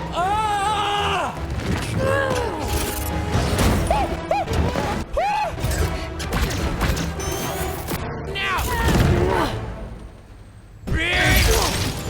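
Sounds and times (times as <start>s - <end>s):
action movie music: 0.0s - 12.0s.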